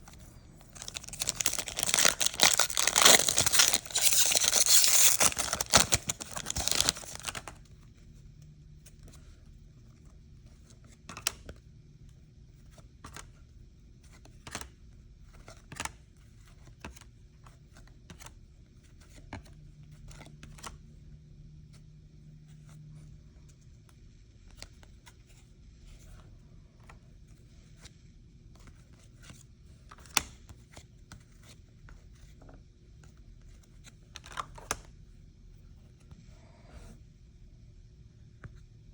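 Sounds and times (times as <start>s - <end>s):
foil wrapper tearing: 0.7s - 7.5s.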